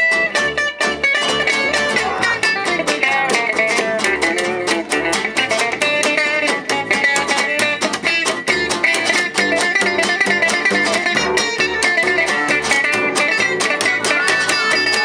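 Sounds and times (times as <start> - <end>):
jazz band with strummed guitars: 0.0 - 15.0.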